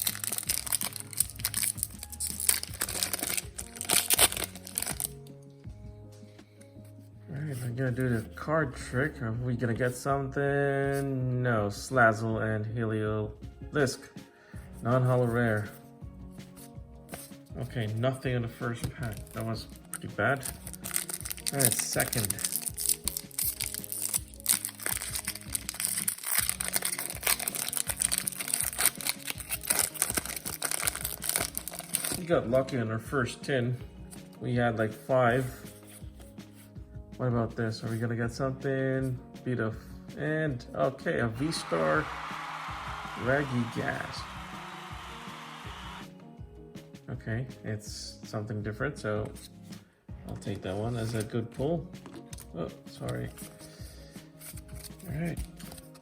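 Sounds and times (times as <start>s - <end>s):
foil wrapper crinkling and tearing: 0.0s - 5.2s, 19.1s - 32.3s, 54.4s - 56.0s
background music: 0.0s - 56.0s.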